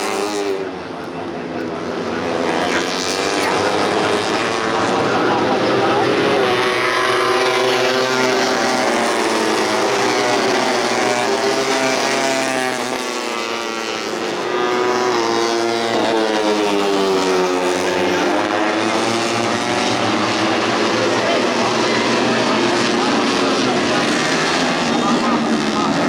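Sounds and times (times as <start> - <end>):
race motorcycles at high revs: 0.0 - 26.0.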